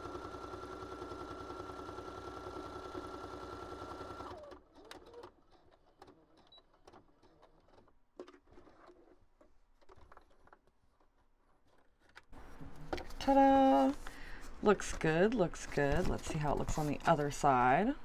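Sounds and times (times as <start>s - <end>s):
faint clicks and rustles: 4.7s - 17.5s.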